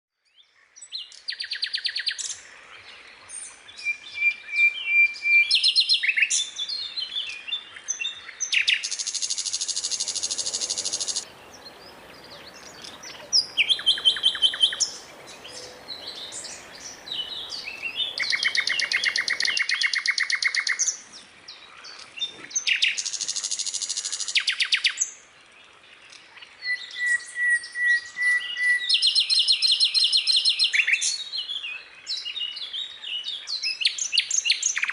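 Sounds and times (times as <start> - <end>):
skylark singing: 9.7 - 20.0.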